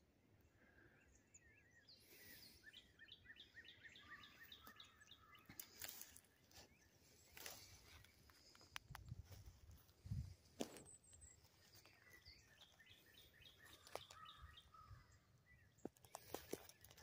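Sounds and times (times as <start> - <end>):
songbird chirping: 0.0 - 17.0
footsteps on dry leaves: 5.5 - 15.1.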